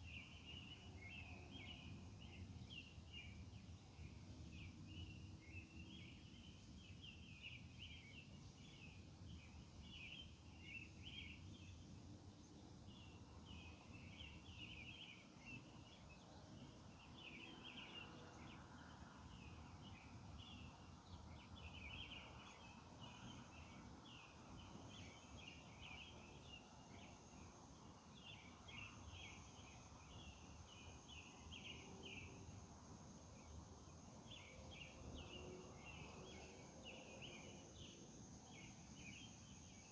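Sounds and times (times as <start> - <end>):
insects chirping: 20.8 - 39.9.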